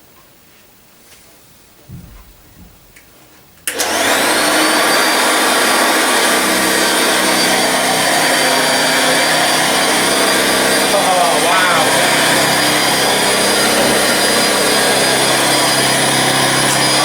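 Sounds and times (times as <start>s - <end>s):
handling knocks: 1.8s - 3.3s
vacuum cleaner motor running: 3.7s - 17.0s.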